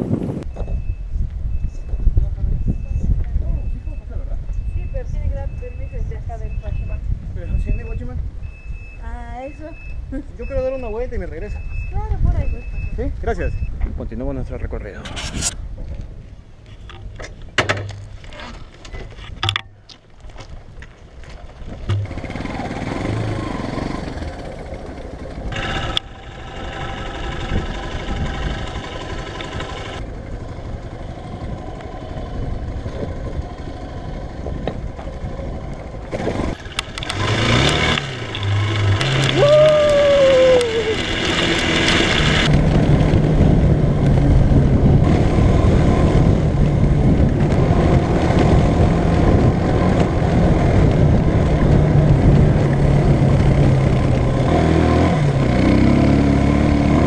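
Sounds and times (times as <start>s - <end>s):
motorcycle engine running: 21.8s - 57.0s.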